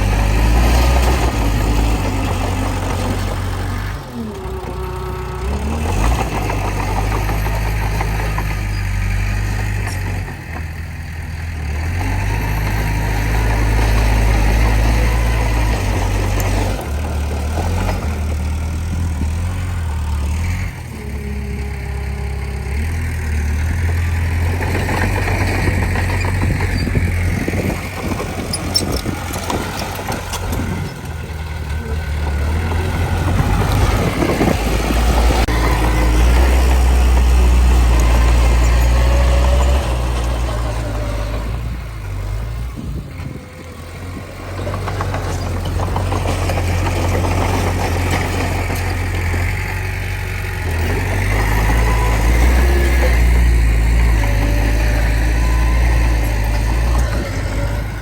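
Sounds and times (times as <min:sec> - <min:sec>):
bulldozer diesel engine rumbling: 0:00.0 - 0:58.0.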